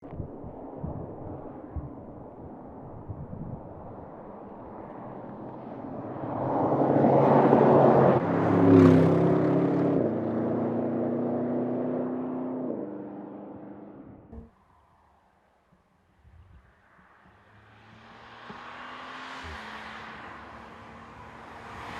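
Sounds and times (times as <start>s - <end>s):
car engine driving by: 17.2s - 21.9s.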